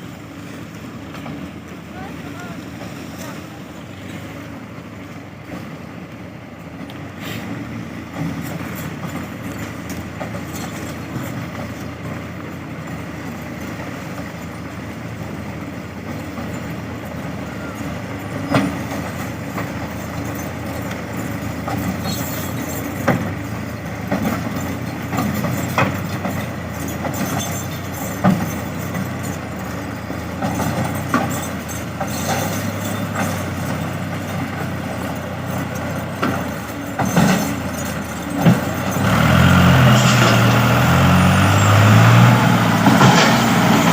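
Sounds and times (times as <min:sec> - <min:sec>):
tractor engine droning: 0:00.0 - 0:43.9
sharp knocks and clanks: 0:18.3 - 0:43.9.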